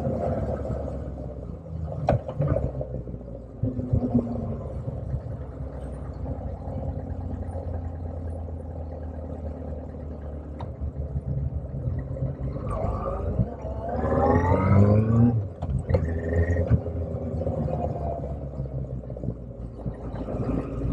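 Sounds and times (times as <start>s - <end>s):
motorcycle engine humming: 0.0s - 14.2s.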